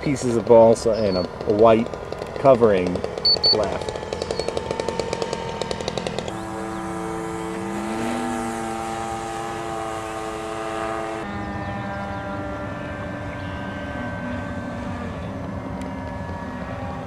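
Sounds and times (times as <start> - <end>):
model airplane motor droning: 0.0 - 17.0.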